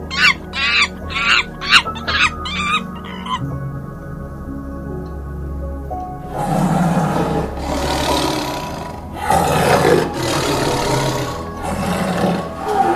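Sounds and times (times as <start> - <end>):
background music: 0.0 - 12.9
big cat roaring: 0.1 - 3.4, 6.3 - 12.9.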